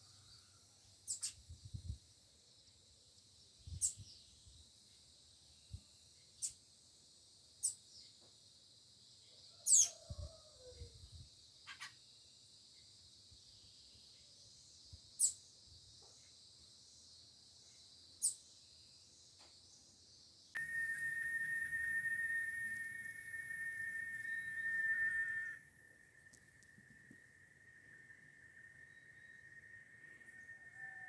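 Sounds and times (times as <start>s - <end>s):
birds chirping: 20.6s - 31.0s
steady high hiss: 20.6s - 31.0s.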